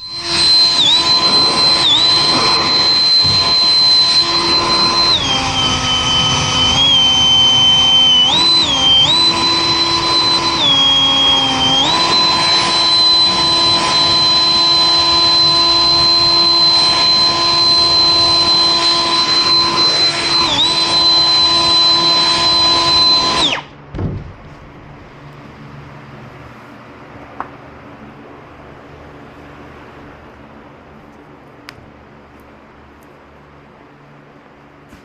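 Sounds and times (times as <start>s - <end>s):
electric motor whining: 0.0s - 23.7s
dull thump: 23.9s - 24.5s.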